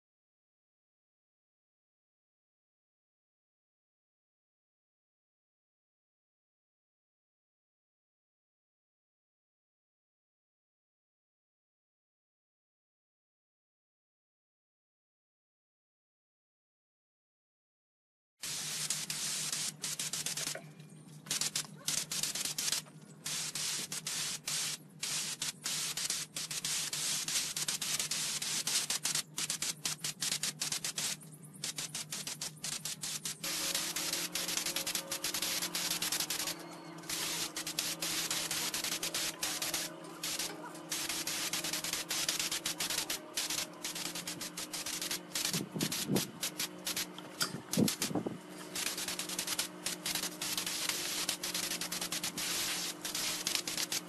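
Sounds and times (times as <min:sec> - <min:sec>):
compressed air hissing: 0:18.4 - 0:20.6, 0:21.3 - 0:54.0.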